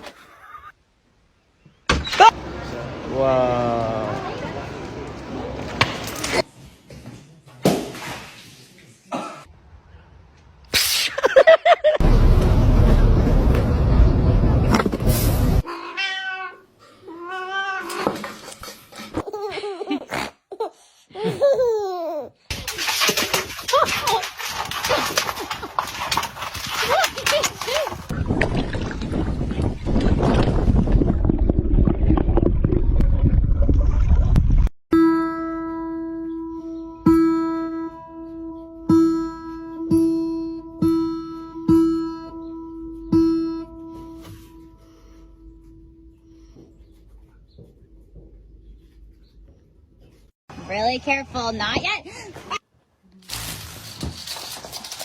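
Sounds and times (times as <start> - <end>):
cat meowing: 15.6 - 18.0
plucked string instrument: 35.0 - 44.9.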